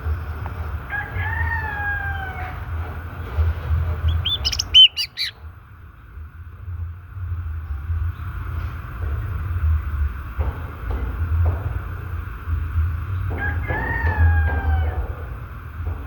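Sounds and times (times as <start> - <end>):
steady low rumble: 0.0 - 13.6
rooster crowing: 0.7 - 3.1, 4.0 - 5.3, 13.3 - 15.4
bird whistling short notes: 4.1 - 5.4.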